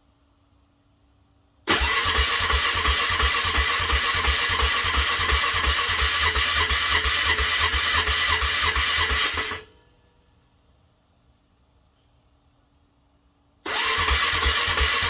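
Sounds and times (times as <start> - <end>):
car engine cranking: 1.7 - 9.6, 13.7 - 15.0.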